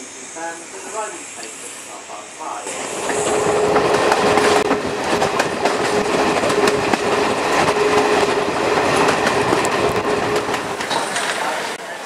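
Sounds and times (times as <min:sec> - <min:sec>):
train rushing noise: 0:00.0 - 0:12.0
wheels clattering over rail joints: 0:02.7 - 0:11.8.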